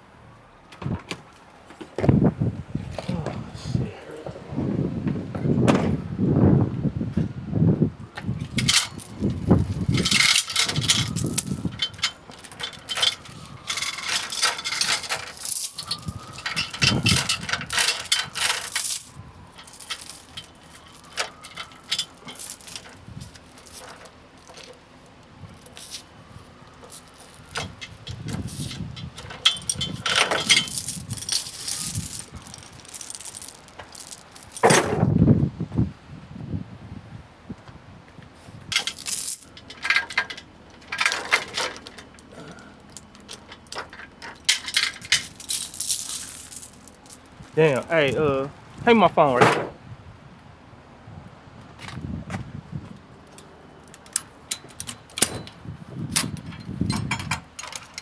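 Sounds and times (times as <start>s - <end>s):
metal rattling and clanking: 8.3s - 35.1s, 38.7s - 49.8s, 53.3s - 58.0s.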